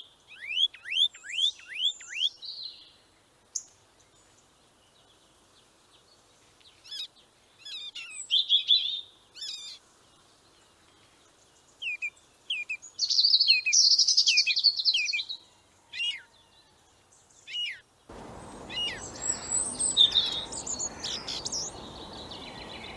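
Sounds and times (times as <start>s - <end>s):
small birds chirping and trilling: 16.0s - 22.9s
steady background hiss: 18.1s - 22.9s.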